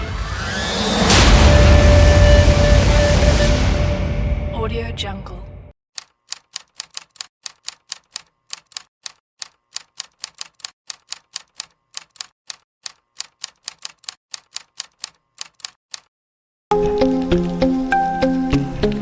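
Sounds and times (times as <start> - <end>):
typewriter key clicks: 6.4 - 16.1.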